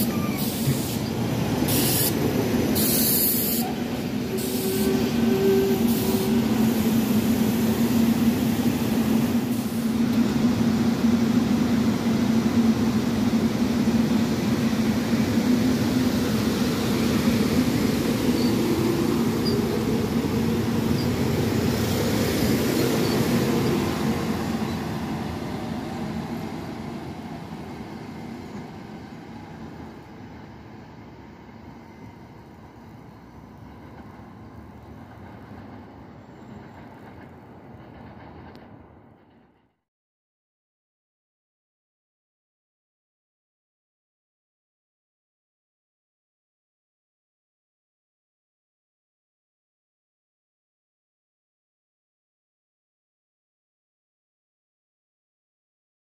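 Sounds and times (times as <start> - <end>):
train low hum: 0.0 - 39.8
train wheels rumbling on rail: 0.0 - 39.8.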